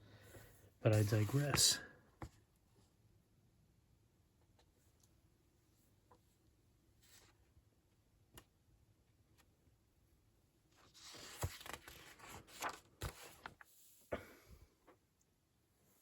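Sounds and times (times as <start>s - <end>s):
paper rustling and crackling: 0.9s - 1.8s, 10.8s - 13.7s.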